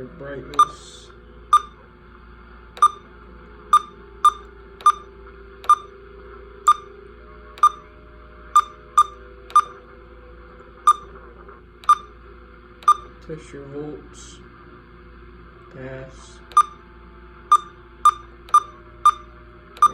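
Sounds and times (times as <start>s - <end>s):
faint hum: 0.0s - 19.9s
radio key-press beeps: 0.5s - 0.9s, 1.5s - 1.8s, 2.8s - 3.1s, 3.8s - 5.9s, 6.7s - 6.9s, 7.6s - 7.9s, 8.6s - 9.8s, 10.9s - 11.1s, 11.8s - 12.2s, 12.8s - 13.2s, 16.4s - 16.8s, 17.5s - 19.9s.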